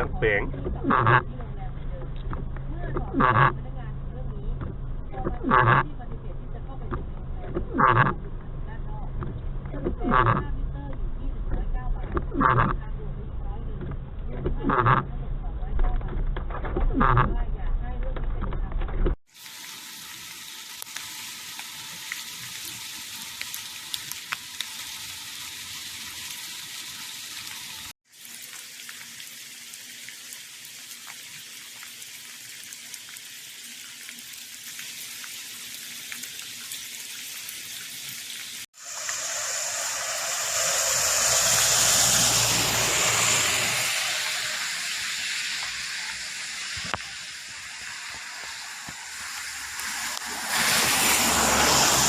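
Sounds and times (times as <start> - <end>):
rain falling: 19.4 - 52.0
raindrop ticks: 38.8 - 50.7
rushing noise with low rumble: 38.8 - 52.0.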